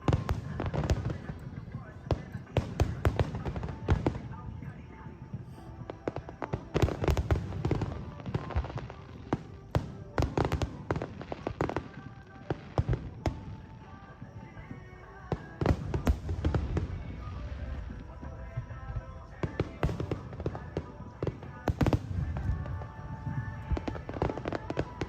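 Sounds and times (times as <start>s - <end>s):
background music: 0.0s - 25.0s
fireworks bangs and crackles: 0.0s - 25.0s.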